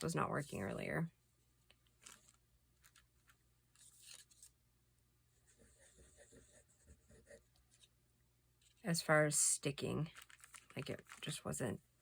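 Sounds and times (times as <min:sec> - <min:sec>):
paper rustling: 0:01.8 - 0:04.6, 0:10.1 - 0:11.5.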